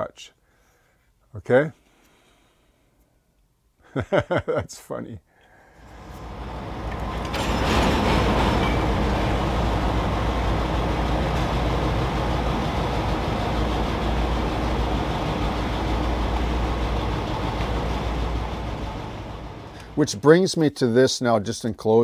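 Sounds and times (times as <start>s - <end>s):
train rumbling with deep hum: 5.7s - 20.2s.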